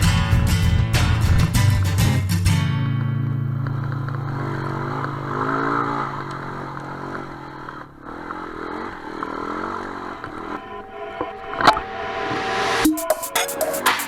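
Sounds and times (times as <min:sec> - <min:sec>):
dirt bike engine revving: 0:03.4 - 0:12.2.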